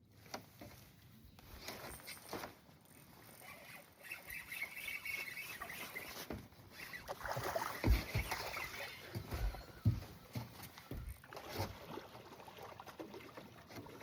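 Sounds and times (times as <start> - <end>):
faint wavering whir: 2.8 - 9.8.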